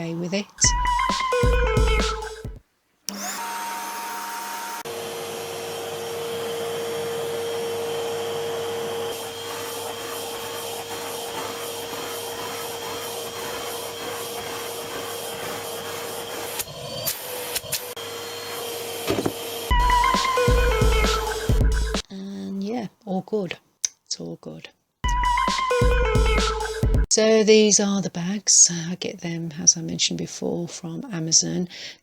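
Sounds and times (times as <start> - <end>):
vacuum cleaner whining: 0.6 - 22.0.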